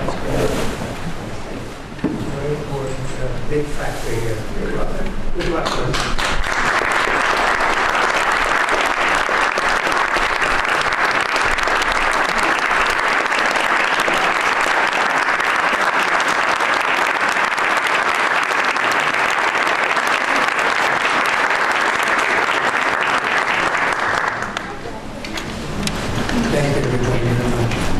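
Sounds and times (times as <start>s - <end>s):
audience applause: 5.4s - 25.1s.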